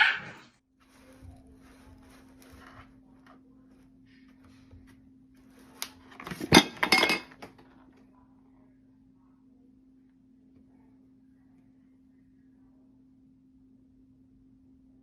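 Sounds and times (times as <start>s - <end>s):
hard objects clattering: 5.8s - 7.8s.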